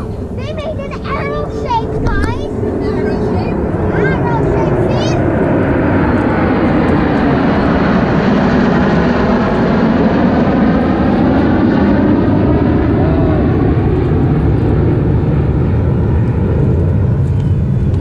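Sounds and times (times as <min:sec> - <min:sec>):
jet aircraft roaring past: 0:00.0 - 0:18.0.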